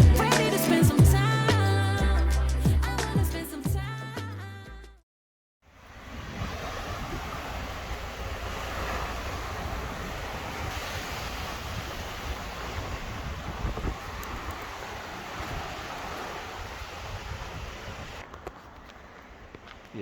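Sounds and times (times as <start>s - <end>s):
waves washing: 5.7s - 20.0s
wind on microphone: 6.0s - 19.9s.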